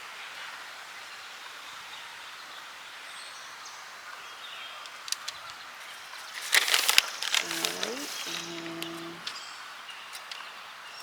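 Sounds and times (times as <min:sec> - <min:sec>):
outdoor background hiss: 0:02.6 - 0:11.0.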